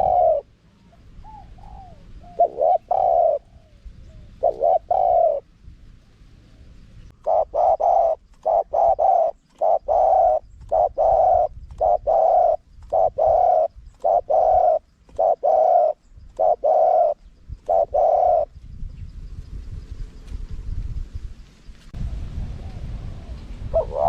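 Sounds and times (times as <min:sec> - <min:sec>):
dove cooing: 0:00.0 - 0:05.5, 0:07.1 - 0:18.5, 0:22.7 - 0:24.0.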